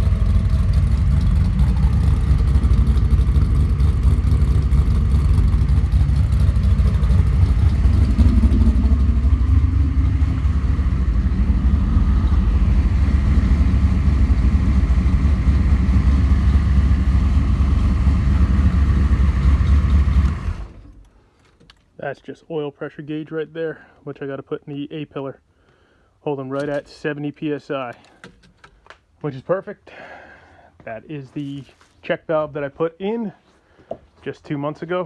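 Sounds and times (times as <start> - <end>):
engine idling exhaust rumble: 0.0 - 21.1.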